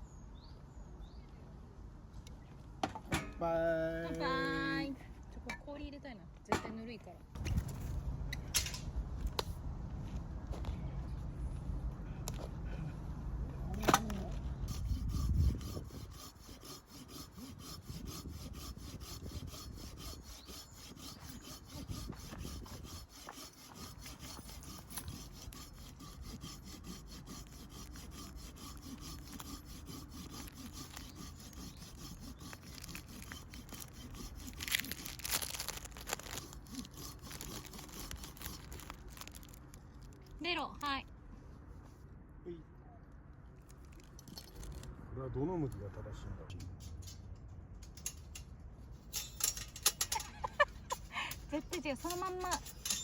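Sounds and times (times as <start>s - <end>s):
hand saw rasping through wood: 14.6s - 39.6s, 49.8s - 53.0s.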